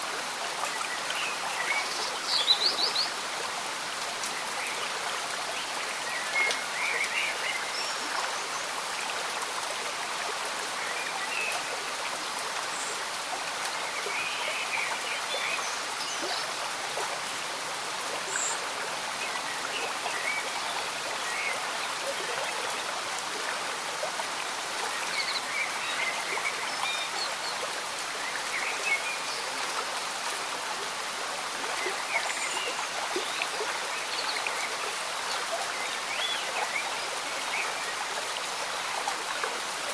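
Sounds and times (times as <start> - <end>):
rain falling: 0.0 - 39.9
stream bubbling gently: 0.0 - 39.9.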